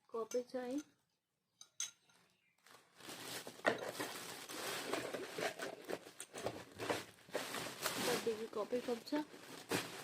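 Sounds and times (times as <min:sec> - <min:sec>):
gift packaging rustling: 0:02.2 - 0:10.0.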